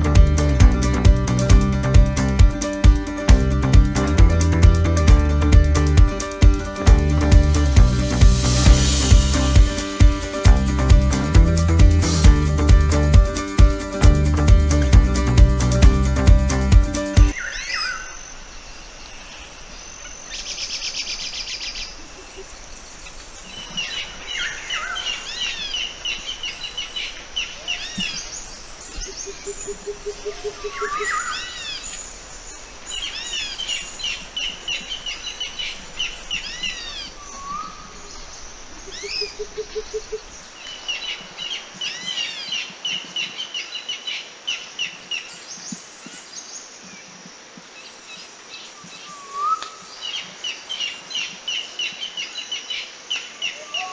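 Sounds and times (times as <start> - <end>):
wild birds singing: 0.0 - 47.1, 47.7 - 53.9
buzzy bird trill: 32.8 - 40.3.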